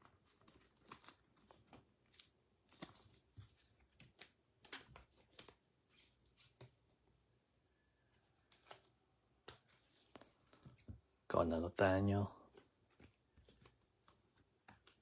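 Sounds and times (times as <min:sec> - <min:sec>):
trading cards rustling and clicking: 0:00.0 - 0:06.9, 0:08.0 - 0:11.2, 0:12.1 - 0:15.0.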